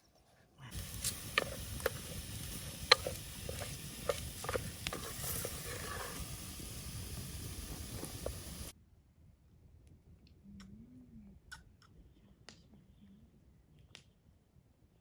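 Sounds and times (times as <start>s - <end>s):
campfire crackling and popping: 0.7s - 8.7s.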